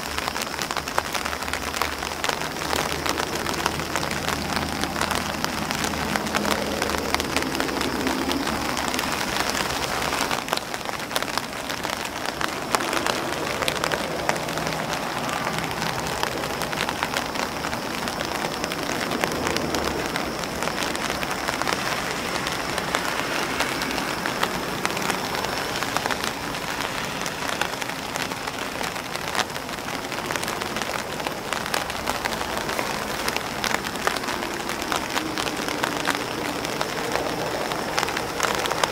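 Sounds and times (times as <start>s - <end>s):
rain on an umbrella: 0.0s - 38.9s.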